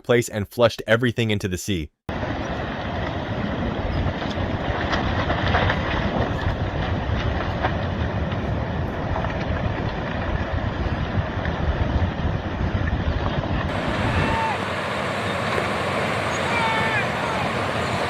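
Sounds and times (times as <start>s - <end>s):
landslide rumbling roar: 2.1s - 18.0s
wind noise on microphone: 2.2s - 14.6s.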